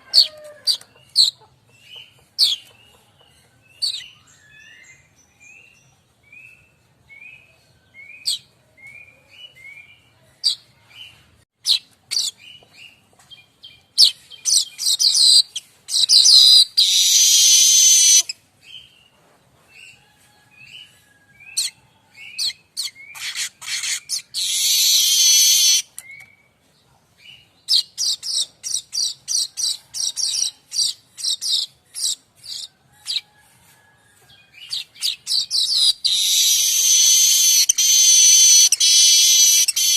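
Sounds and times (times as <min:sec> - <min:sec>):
bird chirps and ticks: 0:21.6 - 0:26.4, 0:34.7 - 0:39.9.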